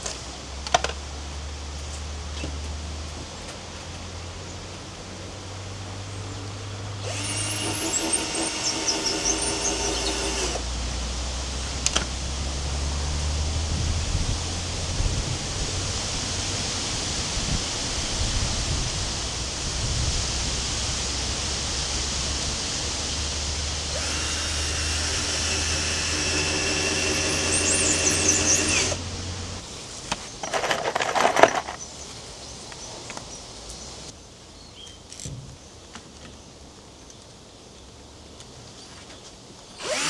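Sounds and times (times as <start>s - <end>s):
power tool motor whine: 7.0s - 12.2s, 23.5s - 29.6s, 39.8s - 40.0s
handling sounds: 24.0s - 32.2s.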